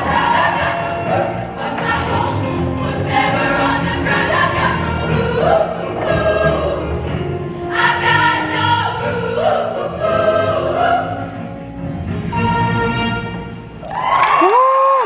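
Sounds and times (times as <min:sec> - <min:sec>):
women's choir singing: 0:00.0 - 0:11.6.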